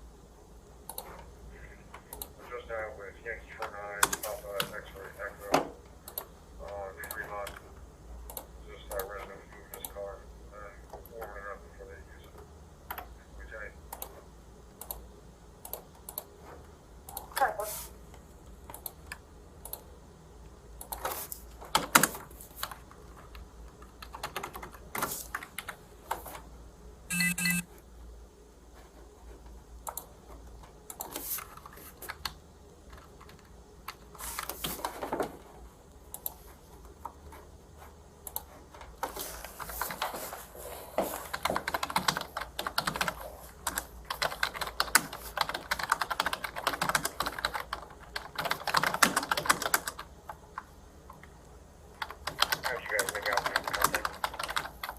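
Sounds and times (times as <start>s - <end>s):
computer keyboard typing: 6.0s - 10.0s, 13.9s - 16.4s, 18.7s - 19.9s, 20.8s - 26.2s, 27.1s - 27.6s, 29.8s - 35.0s, 36.1s - 37.4s, 38.2s - 40.2s, 41.2s - 51.3s, 51.9s - 54.9s
short electronic beep: 27.1s - 27.6s.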